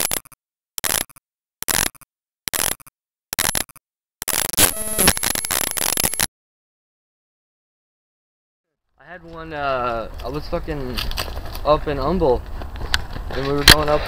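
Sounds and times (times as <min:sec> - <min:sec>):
brief tone: 0:03.5 - 0:06.3.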